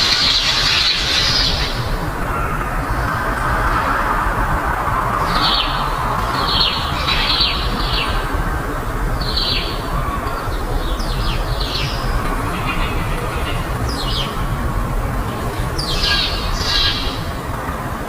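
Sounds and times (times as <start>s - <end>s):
birds chirping harshly: 0.0s - 4.0s, 9.0s - 17.3s
low background rumble: 0.0s - 18.0s.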